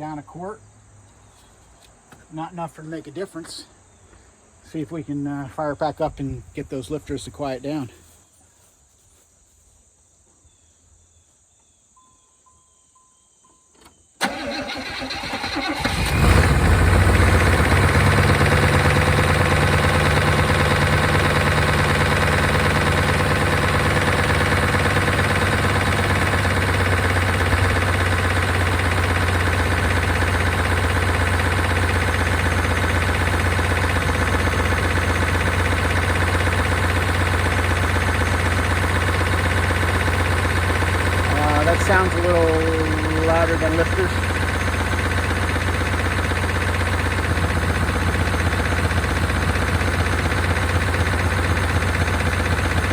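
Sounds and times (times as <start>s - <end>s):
engine idling: 14.2s - 52.9s
starter cranking engine: 14.2s - 52.9s.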